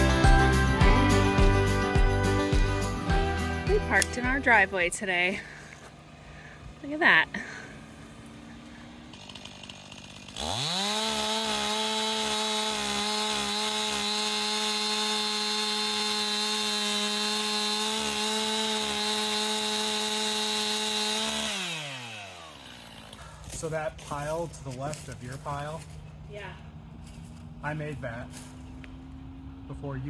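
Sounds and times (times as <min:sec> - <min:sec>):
chainsaw revving: 0:07.2 - 0:24.2.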